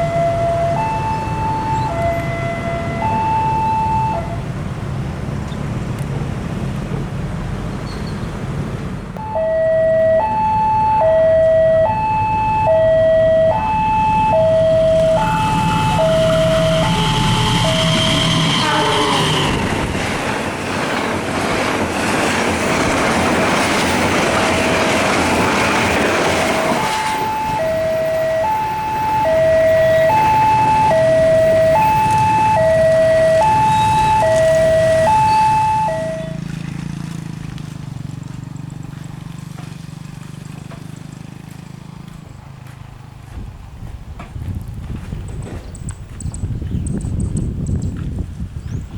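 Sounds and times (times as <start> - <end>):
two-tone warning alarm: 0.0 - 4.5, 9.2 - 19.7, 24.3 - 36.5
train rushing rumble: 0.0 - 39.6, 42.2 - 48.9.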